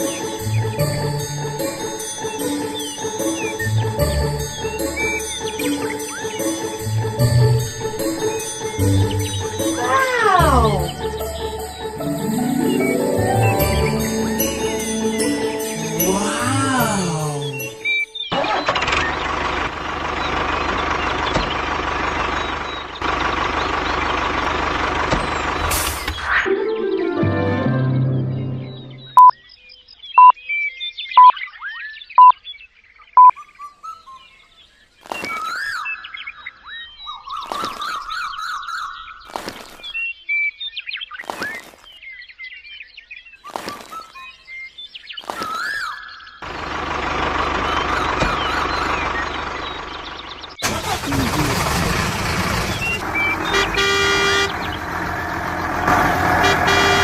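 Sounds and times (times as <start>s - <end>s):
birds chirping and twittering: 0.0s - 27.0s, 28.0s - 57.0s
small engine running: 18.4s - 25.8s, 46.4s - 57.0s.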